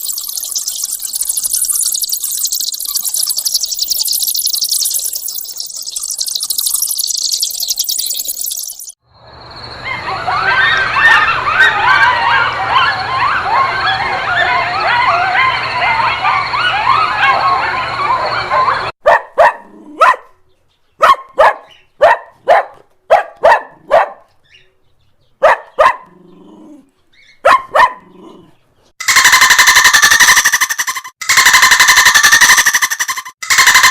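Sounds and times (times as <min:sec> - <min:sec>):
high squeaky calls: 0:00.0 - 0:09.0, 0:29.0 - 0:33.9
dog barking: 0:18.5 - 0:20.3, 0:21.0 - 0:24.3, 0:25.4 - 0:26.2, 0:27.4 - 0:28.2.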